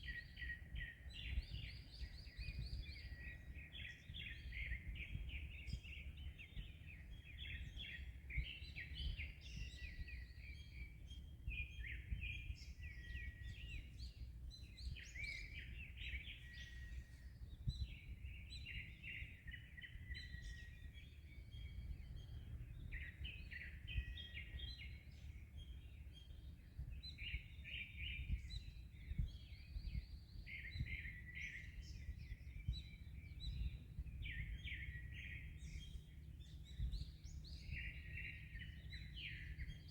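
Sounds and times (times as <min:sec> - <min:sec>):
songbirds chirping and trilling: 0:00.0 - 0:39.9
wind: 0:00.0 - 0:39.9.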